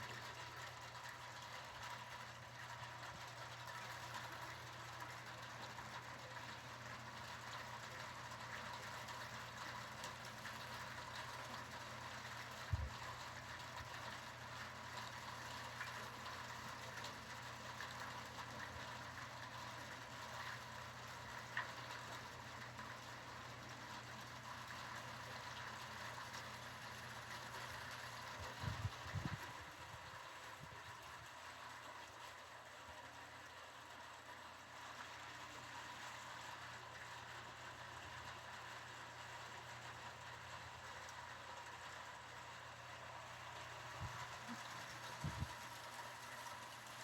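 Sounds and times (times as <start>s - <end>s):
low steady hum: 0.0s - 47.0s
rain on metal roof: 0.0s - 47.0s.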